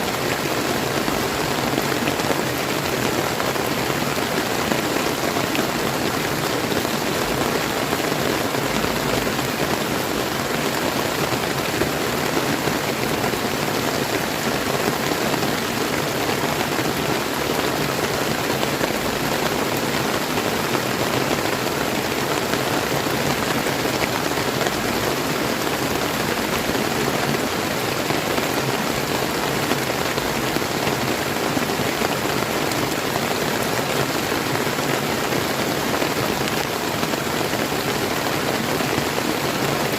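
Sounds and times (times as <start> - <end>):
rain falling: 0.0 - 39.9
river flowing: 0.0 - 39.9.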